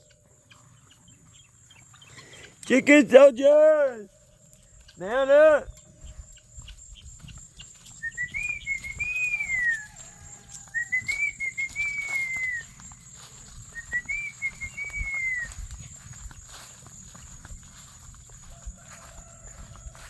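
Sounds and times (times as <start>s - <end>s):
person whistling a tune: 8.0s - 10.0s, 10.7s - 12.8s, 13.7s - 15.8s.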